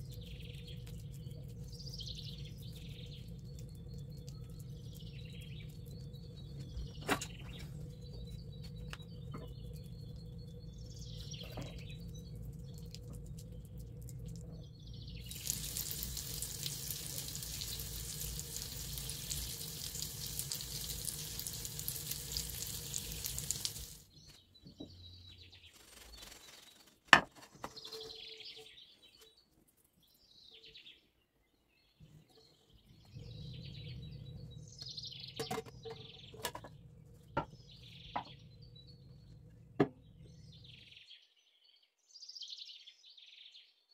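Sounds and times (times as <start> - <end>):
low steady hum: 0.0 - 26.0, 32.0 - 40.8
small birds chirping: 0.0 - 43.9
steady hiss: 15.2 - 24.1.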